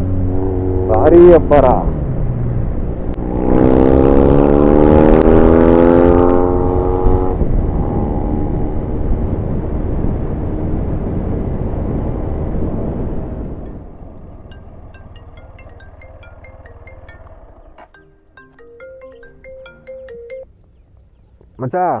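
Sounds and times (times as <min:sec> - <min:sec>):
wind rush: 0:06.9 - 0:15.0.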